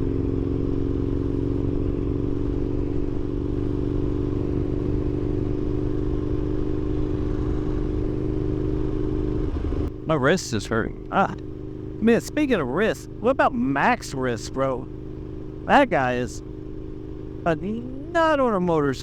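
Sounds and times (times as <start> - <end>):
motorcycle engine cruising: 0.0 - 19.0.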